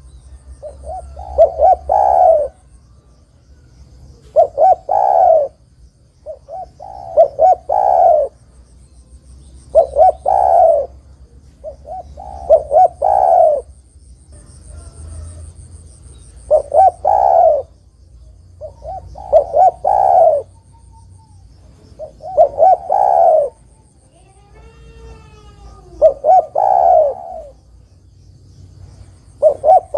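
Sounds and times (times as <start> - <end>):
dove cooing: 0.0 - 2.8, 4.1 - 5.6, 6.2 - 8.4, 9.7 - 13.8, 14.4 - 17.8, 18.6 - 27.7, 29.3 - 29.9.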